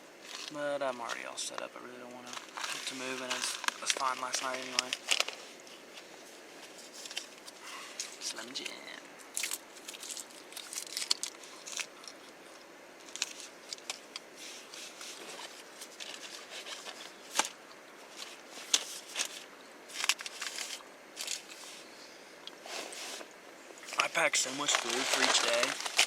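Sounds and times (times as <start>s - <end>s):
plastic wrappers crinkling: 2.2s - 6.0s, 6.6s - 12.4s, 13.0s - 21.6s, 23.9s - 26.0s.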